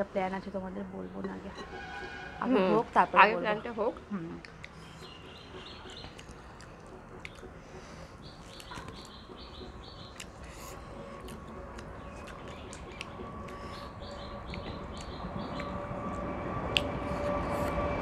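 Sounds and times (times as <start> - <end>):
faint bird chirping: 4.8 - 15.9.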